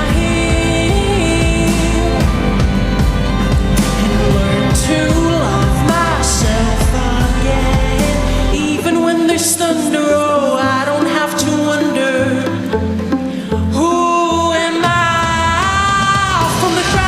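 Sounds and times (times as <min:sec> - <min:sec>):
woman singing: 0:00.0 - 0:03.0, 0:03.9 - 0:12.8, 0:13.6 - 0:17.0
pop backing track with bass: 0:00.0 - 0:17.0.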